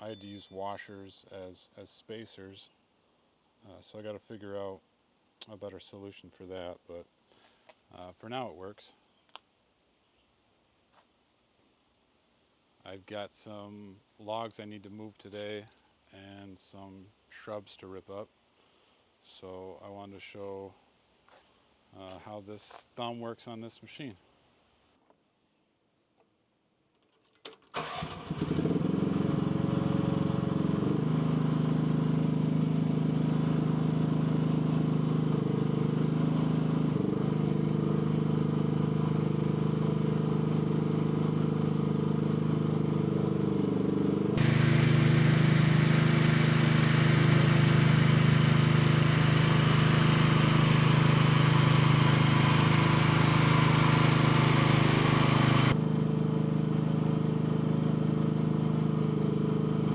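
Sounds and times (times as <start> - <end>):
mini excavator engine idling: 44.4 - 55.8.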